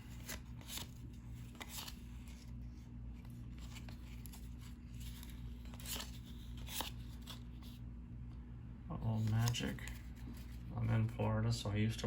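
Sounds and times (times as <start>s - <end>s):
cardboard cards sliding: 0.0s - 7.8s, 9.1s - 10.7s
steady low hum: 0.0s - 12.0s.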